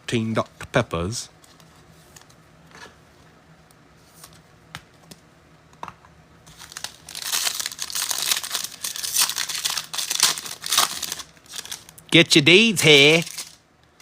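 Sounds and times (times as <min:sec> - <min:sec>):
wrapper crinkling and tearing: 0:06.5 - 0:12.1, 0:12.8 - 0:13.6.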